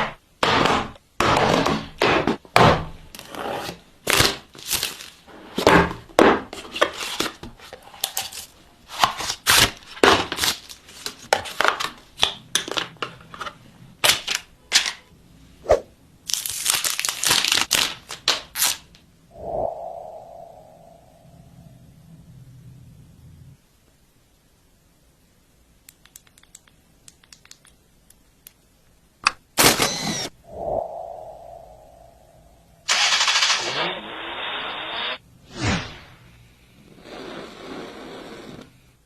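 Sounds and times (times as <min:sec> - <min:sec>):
plastic wrap crinkling and tearing: 0:04.0 - 0:05.2, 0:08.0 - 0:11.9, 0:16.3 - 0:18.9
sharp clicks and crackles: 0:25.9 - 0:28.6.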